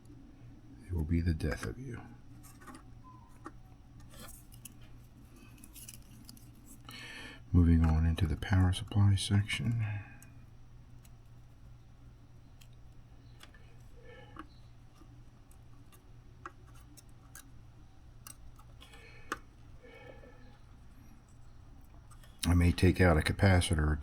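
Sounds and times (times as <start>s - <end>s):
steady low hum: 0.0s - 24.0s
small tools clicking and tapping: 12.5s - 17.6s, 18.2s - 22.5s.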